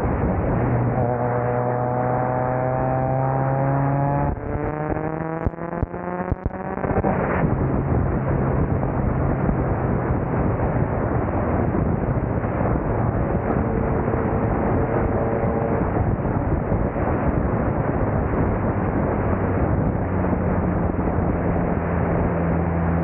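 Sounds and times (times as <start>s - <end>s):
car engine revving: 0.0s - 23.0s
wind roar over microphone: 0.0s - 23.0s
sharp exhaust cracks: 2.9s - 20.0s.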